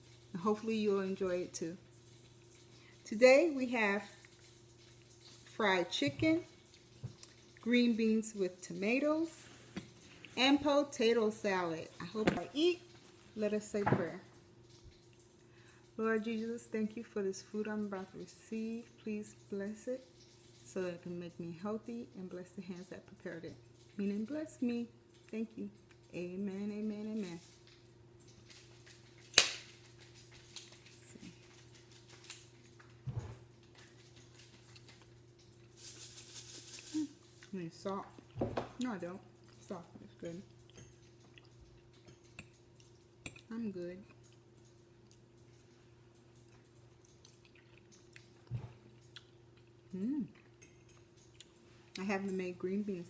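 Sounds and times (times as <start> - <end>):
wet chewing clicks: 6.6 - 7.7, 40.5 - 52.0
person humming mm: 49.9 - 50.4.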